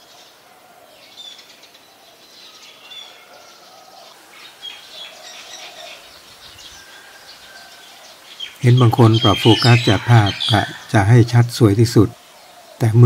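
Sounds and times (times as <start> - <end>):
birds chirping: 0.0 - 13.0
drawn-out low bird notes: 3.7 - 13.0.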